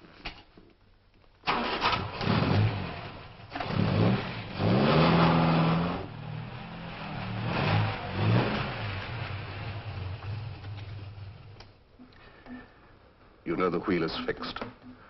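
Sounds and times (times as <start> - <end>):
sports car engine revving: 2.0 - 11.6.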